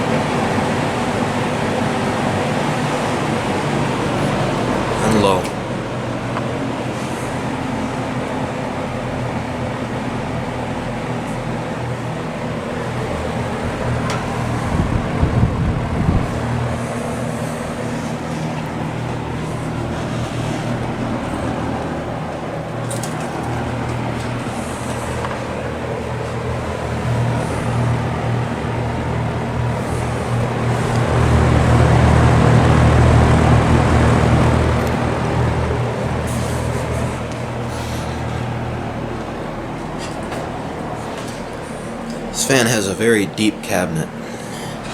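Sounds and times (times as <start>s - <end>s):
box fan running: 0.0s - 44.9s.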